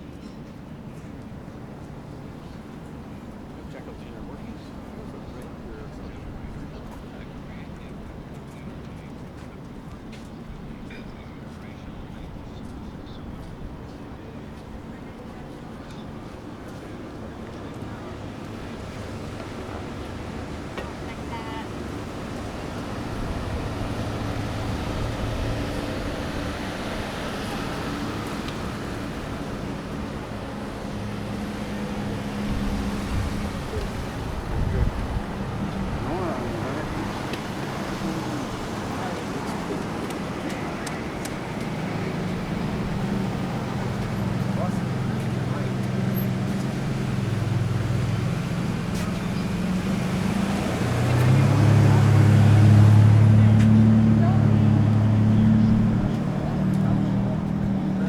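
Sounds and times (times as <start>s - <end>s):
road traffic rumble: 0.0s - 58.0s
vehicle engine humming: 1.7s - 58.0s.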